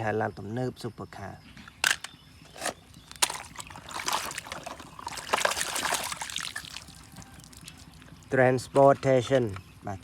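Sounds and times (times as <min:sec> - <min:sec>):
water trickling and splashing: 0:02.8 - 0:08.7.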